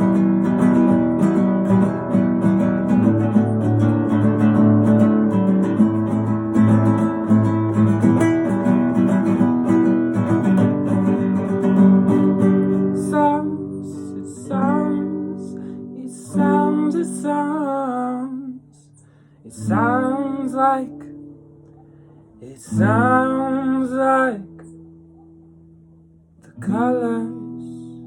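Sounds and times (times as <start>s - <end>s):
acoustic guitar strummed: 0.0s - 28.0s
person singing wordless notes: 12.7s - 18.9s.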